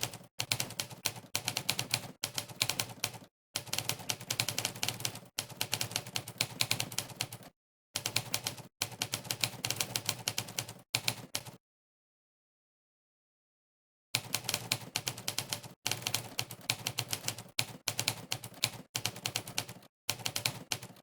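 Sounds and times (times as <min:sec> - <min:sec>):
typewriter keystroke clacks: 0:00.0 - 0:11.6, 0:14.2 - 0:21.0.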